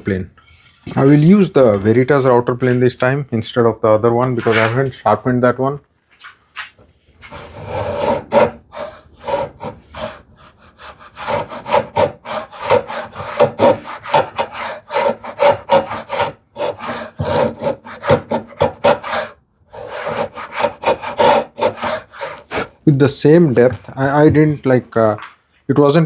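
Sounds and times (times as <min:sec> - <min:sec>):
router plane scraping wood: 0:00.6 - 0:02.8, 0:04.4 - 0:05.2, 0:07.2 - 0:22.9.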